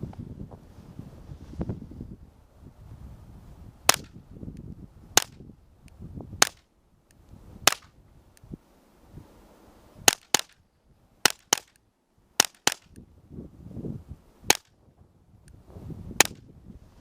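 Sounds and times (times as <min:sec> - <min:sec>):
suppressed pistol shots: 0:03.9 - 0:04.2, 0:07.6 - 0:07.9, 0:12.4 - 0:13.0.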